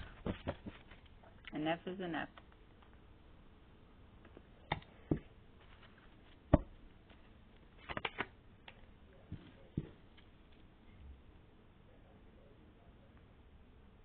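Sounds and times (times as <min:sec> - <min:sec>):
cards tapping and flicking: 0:07.8 - 0:10.0.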